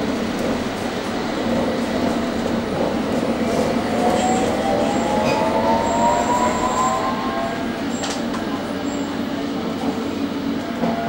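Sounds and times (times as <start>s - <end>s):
wheels rumbling on rail: 0.0s - 11.0s
train traction motor whine: 3.8s - 9.4s.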